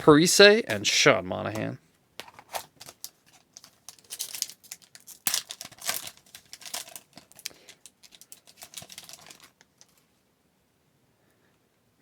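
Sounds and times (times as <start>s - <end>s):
wrapper tearing and crinkling: 2.2s - 10.0s.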